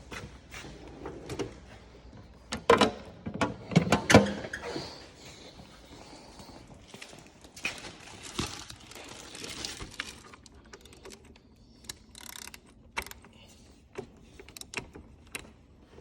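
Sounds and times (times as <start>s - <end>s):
rustling: 6.9s - 10.6s
tools and parts clicking: 10.3s - 13.3s.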